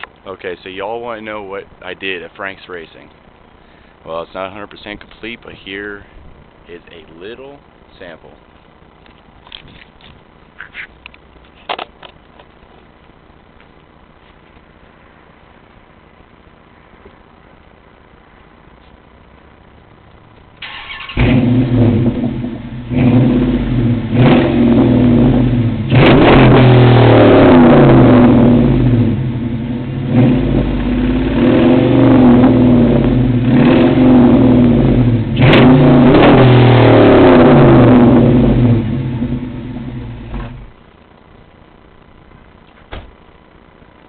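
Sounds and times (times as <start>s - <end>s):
car engine revving: 20.6s - 40.8s.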